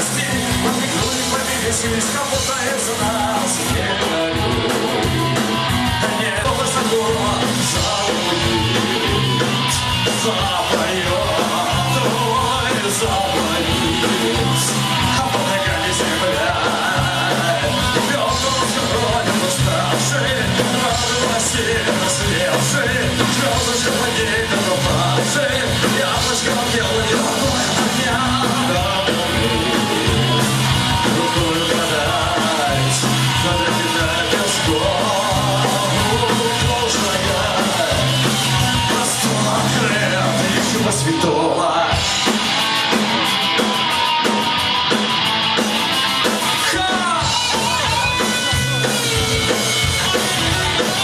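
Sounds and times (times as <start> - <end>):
punk rock band playing live: 0.0 - 51.0.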